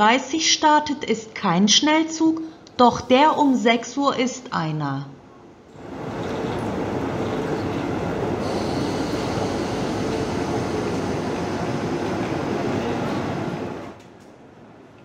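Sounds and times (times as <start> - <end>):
train rolling rumble: 5.7 - 14.2
train hiss: 5.8 - 13.9.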